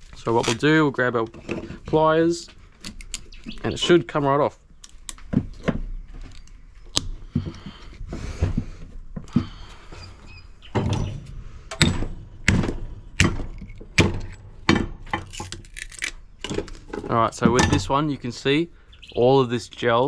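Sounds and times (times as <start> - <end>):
pliers clicking and snapping: 15.1 - 16.6.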